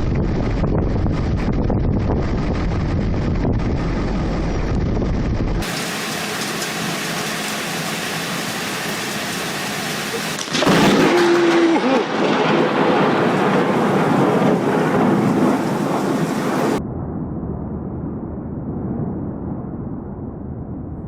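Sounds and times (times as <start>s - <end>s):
wind buffeting microphone: 0.0s - 5.7s
thunderclap and rolling thunder: 0.0s - 7.0s, 10.2s - 21.0s
heavy rain: 5.6s - 16.8s.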